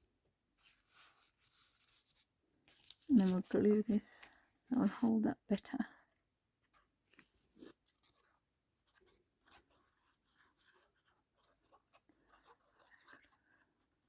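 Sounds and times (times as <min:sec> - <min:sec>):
paper rustling: 0:00.6 - 0:05.1.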